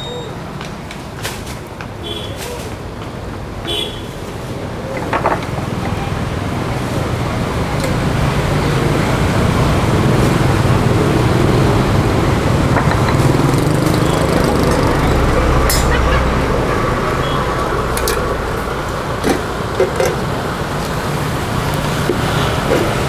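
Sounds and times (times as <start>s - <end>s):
road traffic: 0.0s - 23.0s.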